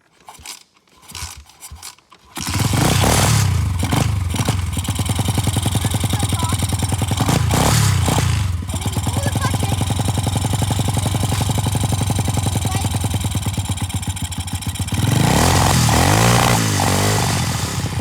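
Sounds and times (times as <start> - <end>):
dirt bike kick-start clattering: 0.0 - 5.4
dirt bike engine running and revving: 1.1 - 18.0.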